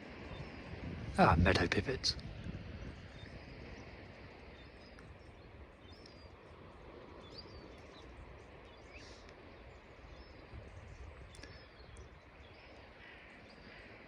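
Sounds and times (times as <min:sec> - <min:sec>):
small songbirds calling: 0:00.0 - 0:14.0
low outdoor rumble: 0:00.8 - 0:11.6.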